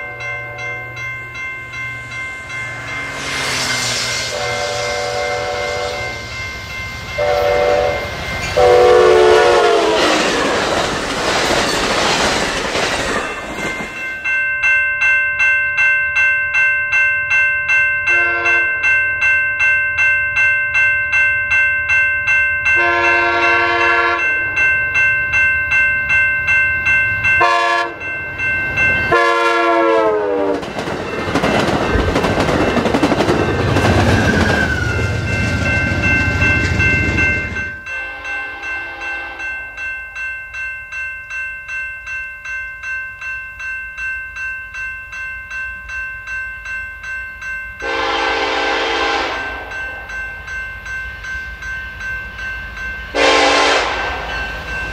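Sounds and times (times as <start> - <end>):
freight train horn blasts: 0.0 - 0.8, 3.1 - 6.4, 7.2 - 10.2, 18.1 - 18.8, 22.8 - 24.4, 27.4 - 28.1, 29.1 - 30.6, 37.9 - 39.6, 47.8 - 49.9, 53.1 - 54.4
steady pulsing ringing: 0.0 - 9.3
train passing at speed: 0.0 - 14.4, 22.3 - 40.2, 47.4 - 54.9
train air horn blasts: 3.1 - 6.3, 7.2 - 10.2, 18.1 - 18.7, 22.8 - 24.4, 27.4 - 28.0, 29.1 - 30.6, 37.9 - 39.5, 47.8 - 49.7, 53.2 - 54.3.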